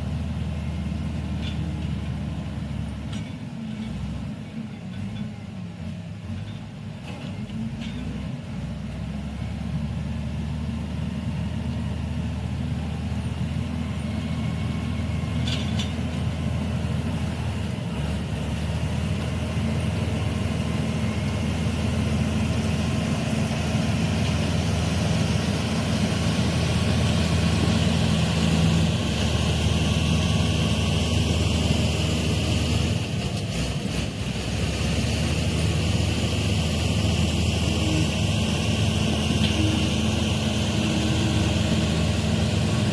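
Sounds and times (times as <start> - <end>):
bulldozer diesel engine working: 0.0 - 42.9.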